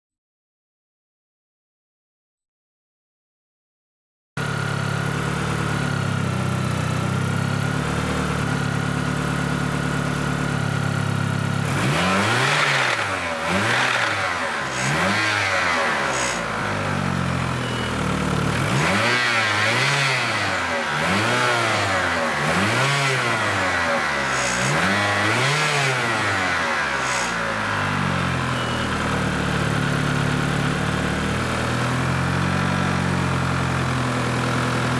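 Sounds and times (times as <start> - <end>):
car engine idling with whine: 4.4 - 34.9
car engine revving: 11.4 - 32.2.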